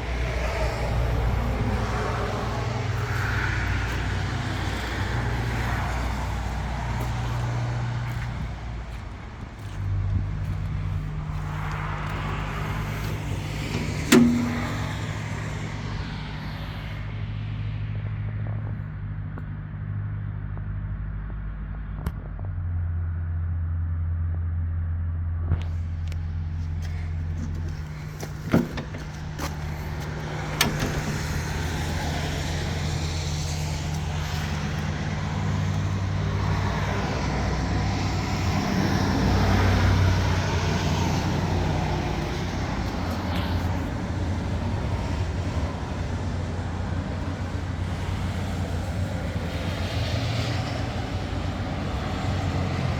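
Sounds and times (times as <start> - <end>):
diesel engine running: 0.0 - 21.8, 22.6 - 52.9
rough machine working noise: 11.0 - 15.3
sharp knocks: 13.7 - 15.2.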